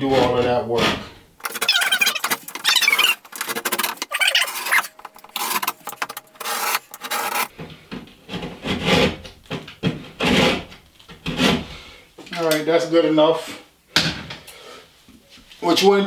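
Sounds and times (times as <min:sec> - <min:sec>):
utility knife scraping drywall: 0:01.4 - 0:07.5.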